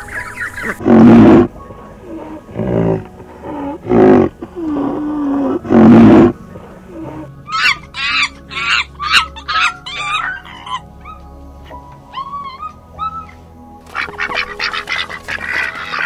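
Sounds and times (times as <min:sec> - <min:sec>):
animal roaring calls: 0:00.6 - 0:10.9
animal moaning: 0:00.6 - 0:13.4.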